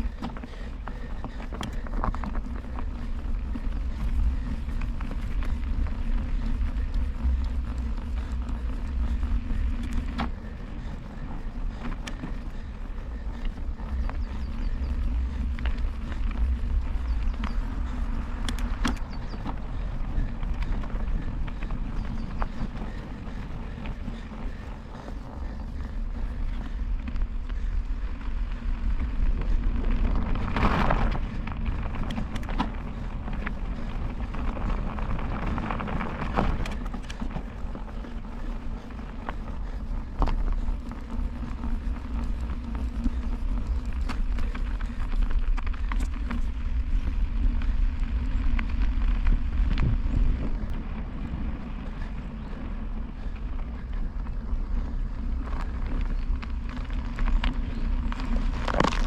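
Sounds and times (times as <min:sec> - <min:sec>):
bicycle road noise: 0:00.0 - 0:59.0
wind rumbling on microphone: 0:00.0 - 0:59.0
small clicks: 0:13.3 - 0:19.6.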